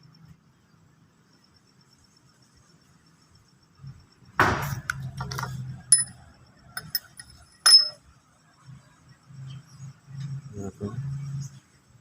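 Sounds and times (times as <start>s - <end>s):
metal tools clinking: 5.2s - 6.2s, 6.8s - 8.0s
metal scraping on workbench: 6.8s - 8.0s.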